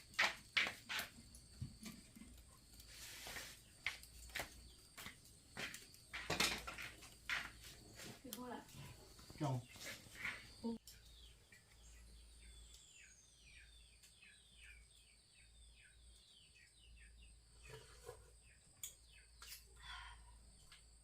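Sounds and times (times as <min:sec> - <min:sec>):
insect whine: 0:00.0 - 0:10.8
bird chirps: 0:09.2 - 0:20.2.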